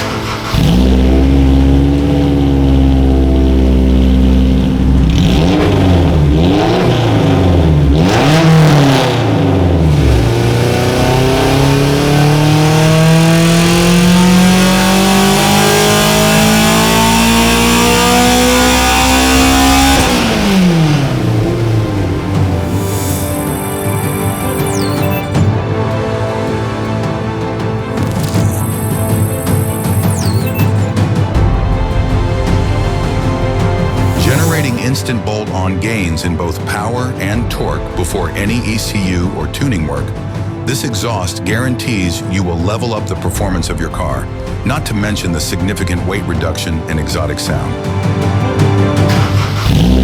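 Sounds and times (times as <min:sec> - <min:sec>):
car engine revving: 0:00.0 - 0:25.6, 0:27.0 - 0:31.5, 0:32.1 - 0:35.2, 0:48.3 - 0:50.0.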